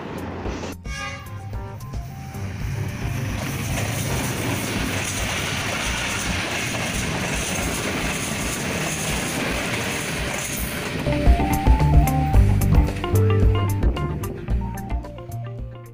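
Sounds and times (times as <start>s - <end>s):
train wheels rushing on rails: 0.0s - 14.9s
music: 0.1s - 4.9s, 11.0s - 15.9s.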